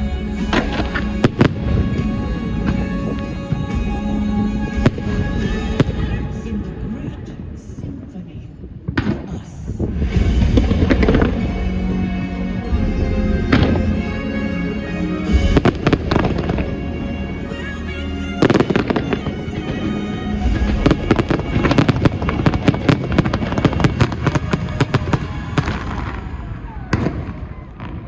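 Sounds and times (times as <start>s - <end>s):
show music: 0.0s - 7.8s, 9.8s - 28.0s
fireworks bangs and crackles: 8.8s - 17.7s, 18.4s - 28.0s.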